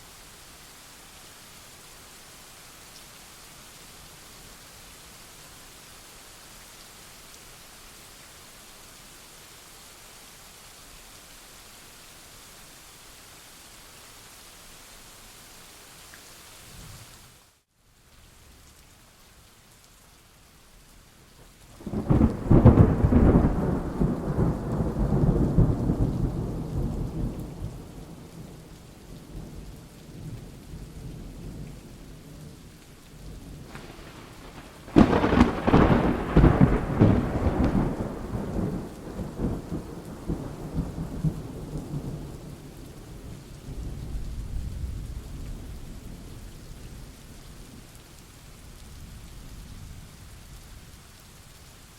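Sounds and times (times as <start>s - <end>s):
steady rain: 0.0s - 51.9s
thunder claps rolling: 21.8s - 27.6s, 33.6s - 42.1s.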